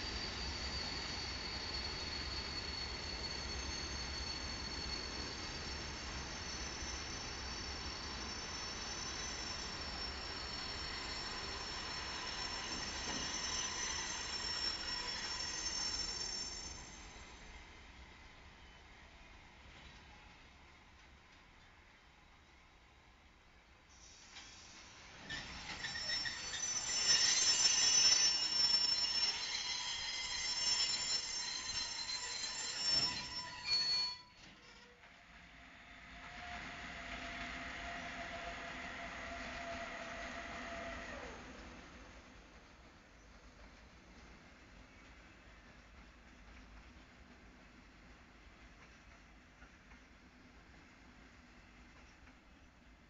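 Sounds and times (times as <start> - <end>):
train wheels rolling: 0.0 - 17.2, 24.2 - 35.1
high-pitched metallic squeal: 0.0 - 17.6, 25.2 - 35.0.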